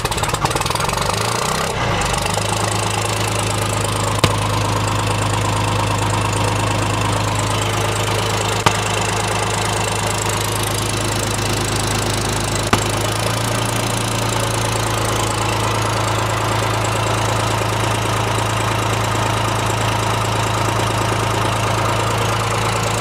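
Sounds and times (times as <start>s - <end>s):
diesel backhoe engine running: 0.0s - 23.0s.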